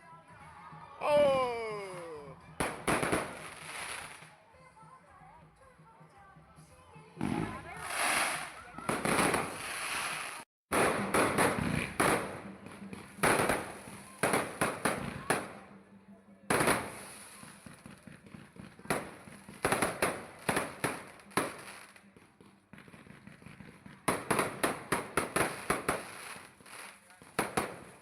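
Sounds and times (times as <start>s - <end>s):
fireworks bangs: 2.6s - 4.3s, 7.2s - 15.5s, 16.5s - 28.0s.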